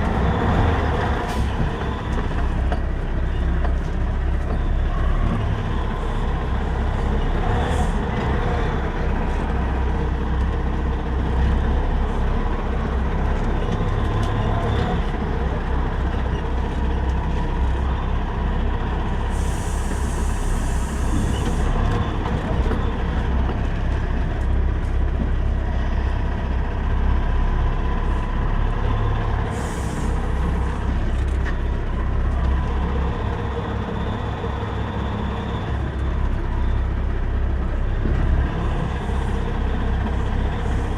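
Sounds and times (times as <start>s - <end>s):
truck diesel engine rumbling: 0.0s - 40.9s
air brakes hissing: 1.2s - 2.1s, 19.3s - 21.8s, 29.4s - 30.9s.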